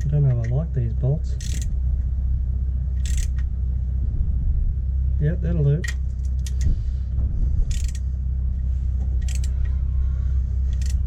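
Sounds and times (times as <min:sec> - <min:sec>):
steady low hum: 0:00.0 - 0:11.0
socket ratchet clicking: 0:01.4 - 0:01.7, 0:03.0 - 0:03.5, 0:05.8 - 0:06.7, 0:07.7 - 0:08.0, 0:09.2 - 0:09.6, 0:10.7 - 0:11.0.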